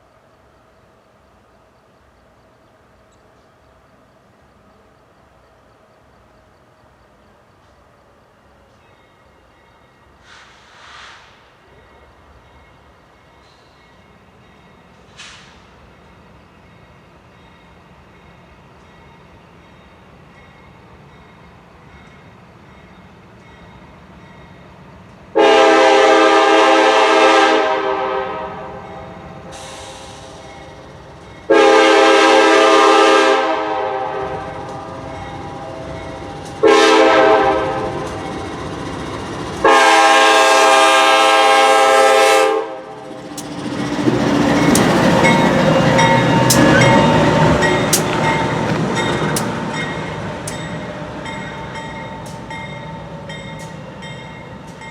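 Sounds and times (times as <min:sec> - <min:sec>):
locomotive air horn blasts: 0:25.4 - 0:30.4, 0:31.5 - 0:38.2, 0:39.6 - 0:43.1
locomotive engine rumbling: 0:28.2 - 0:54.9
wheels clicking over rail joints: 0:43.1 - 0:54.9.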